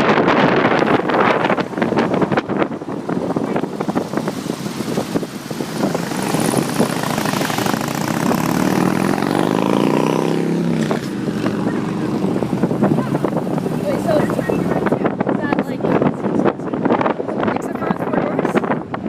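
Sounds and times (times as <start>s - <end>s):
wind buffeting microphone: 0.0s - 19.0s
engine revving up: 3.9s - 14.9s.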